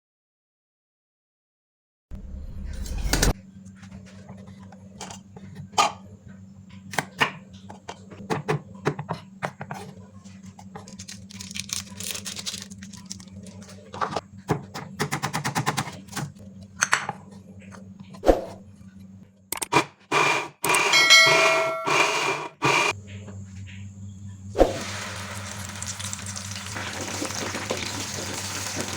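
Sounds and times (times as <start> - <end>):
steady low hum: 20.5 - 26.8
utensils clattering: 20.8 - 22.9.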